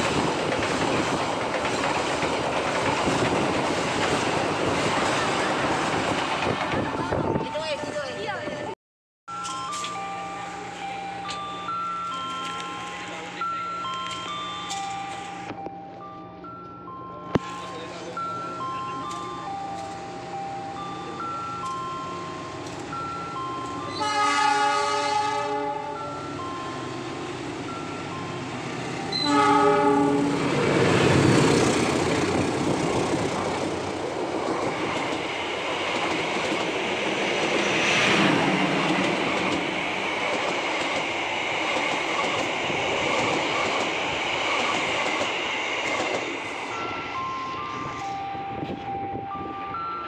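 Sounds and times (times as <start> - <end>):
rail-joint clacking: 0.0 - 8.6, 26.0 - 49.5
passenger train passing: 0.0 - 8.8, 9.4 - 50.0
diesel locomotive horn blasts: 23.9 - 26.2, 29.1 - 30.7.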